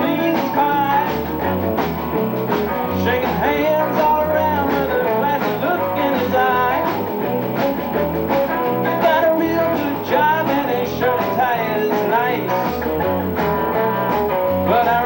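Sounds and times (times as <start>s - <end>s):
person singing: 0.0s - 1.3s, 2.8s - 7.0s, 8.7s - 12.8s, 14.5s - 15.0s
bass line: 0.0s - 15.0s
rock band playing: 0.0s - 15.0s
steady drums: 0.0s - 15.0s.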